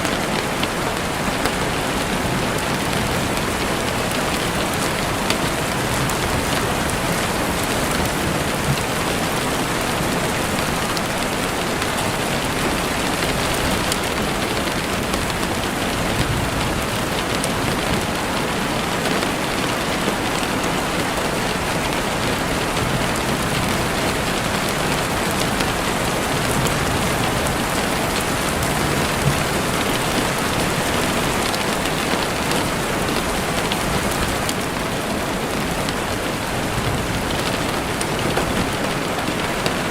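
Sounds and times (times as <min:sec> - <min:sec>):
heavy rain on a window: 0:00.0 - 0:39.9.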